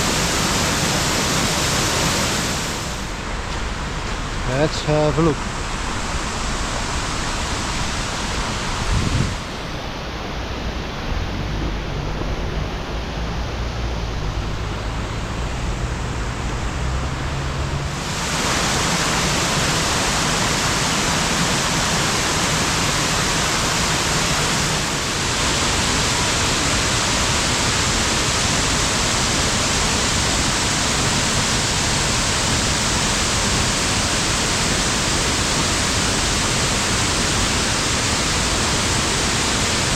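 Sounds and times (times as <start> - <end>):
creek water rushing: 0.0 - 39.9
low hum: 5.4 - 18.0.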